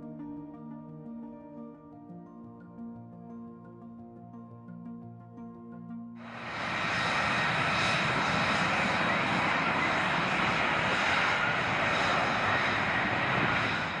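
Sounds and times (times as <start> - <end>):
jet aircraft engine: 6.2 - 14.0.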